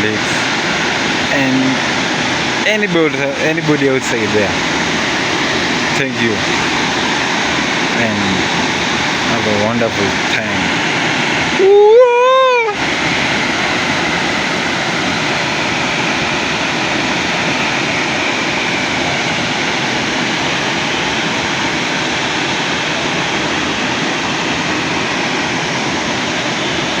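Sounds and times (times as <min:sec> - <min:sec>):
waterfall: 0:00.0 - 0:27.0.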